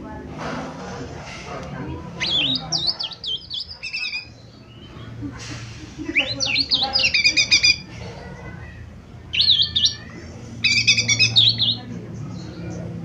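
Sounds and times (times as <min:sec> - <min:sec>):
bird chirping and whistling: 0:02.2 - 0:05.0, 0:06.1 - 0:07.9, 0:09.3 - 0:11.9.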